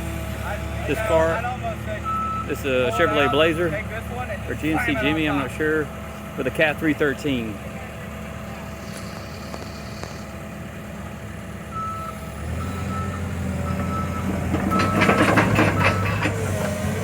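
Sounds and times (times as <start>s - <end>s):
excavator diesel engine running: 0.0s - 17.0s
clattering noise: 13.7s - 17.0s.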